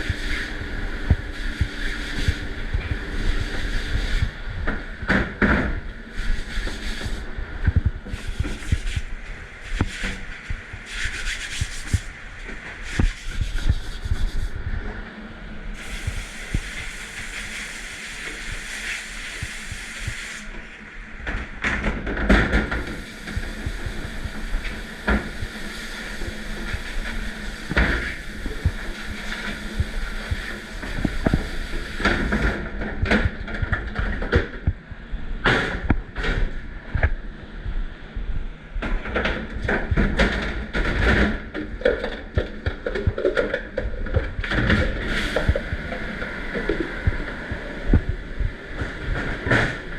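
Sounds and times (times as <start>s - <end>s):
steady hiss: 5.9s - 14.6s, 15.7s - 20.9s, 22.7s - 32.8s, 44.8s - 49.9s.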